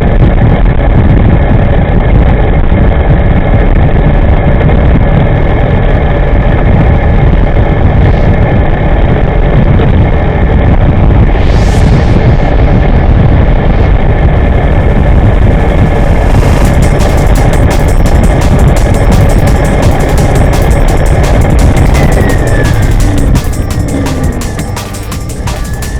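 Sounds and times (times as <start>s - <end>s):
wind rush and road noise: 0.0s - 25.9s.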